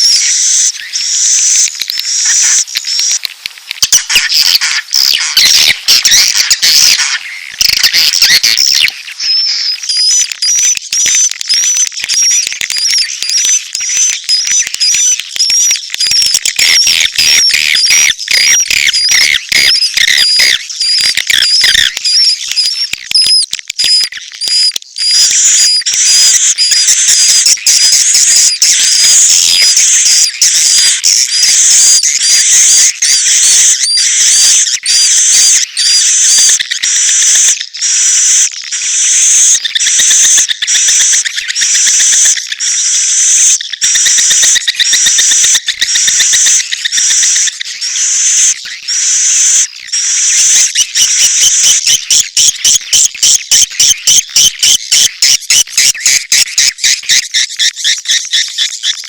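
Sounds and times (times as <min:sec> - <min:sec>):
lower chirps: 0:00.0 - 0:58.3
birds chirping and twittering: 0:00.0 - 0:59.0.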